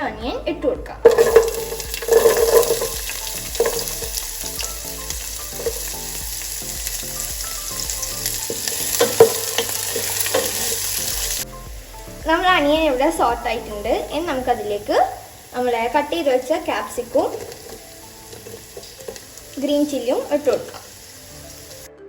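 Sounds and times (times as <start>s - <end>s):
utensil knocking against pan: 1.0s - 6.1s, 8.4s - 11.4s
onion sizzling in hot oil: 1.0s - 21.9s.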